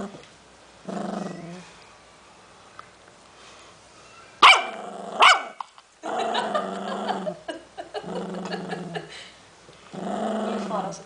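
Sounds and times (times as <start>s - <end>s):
puppy growling: 0.0s - 1.8s, 4.6s - 7.4s, 8.0s - 9.1s, 9.9s - 11.0s
puppy barking: 4.4s - 5.6s.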